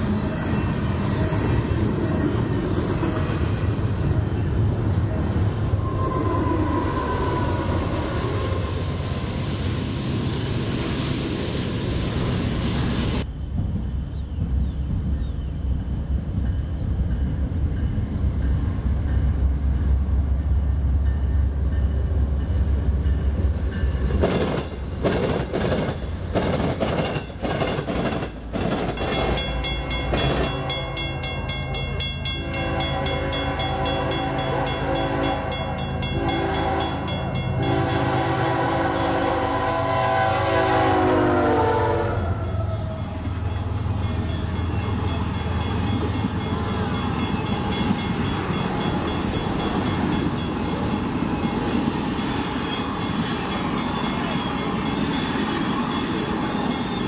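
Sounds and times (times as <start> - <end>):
diesel locomotives rumbling: 0.0 - 57.0
train horn blasts: 29.1 - 43.0.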